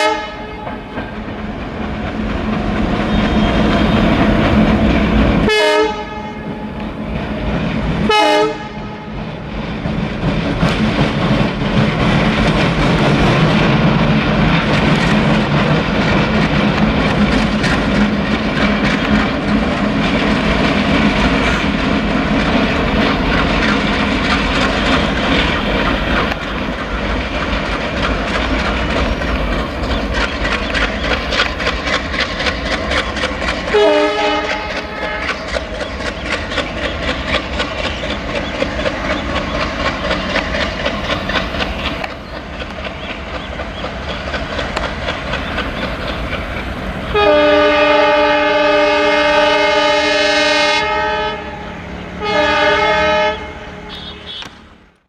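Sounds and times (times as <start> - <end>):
train horn blast: 0.0 - 1.0, 5.4 - 6.8, 8.0 - 9.3, 33.7 - 35.6, 47.1 - 54.7
diesel locomotive engine running: 0.0 - 55.0
wheels clickety-clack on rails: 0.0 - 55.0.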